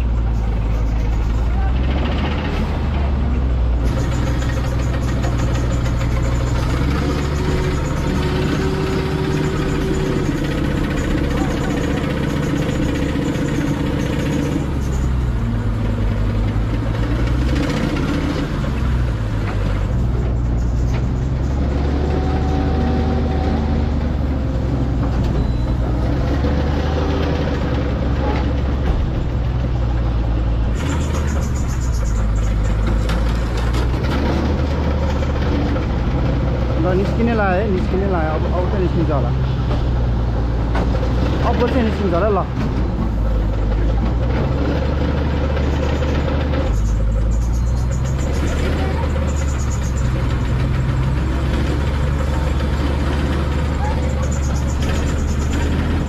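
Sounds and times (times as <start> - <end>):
heavy vehicle engine running: 0.0 - 56.0.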